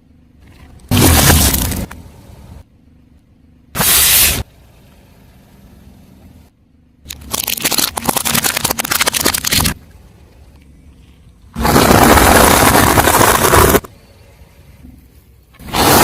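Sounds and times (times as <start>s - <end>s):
car tyre crushing crunchy objects: 0.8s - 2.1s, 11.5s - 13.9s
loud crunching burst: 11.6s - 13.9s, 15.6s - 16.0s.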